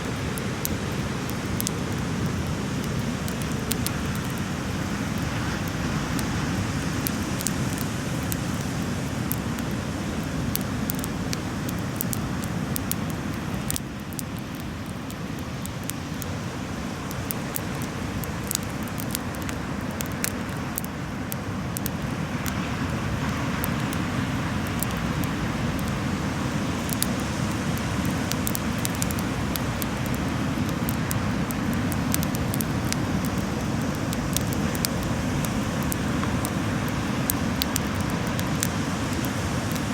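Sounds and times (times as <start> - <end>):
bonfire crackling and popping: 0.0 - 39.9.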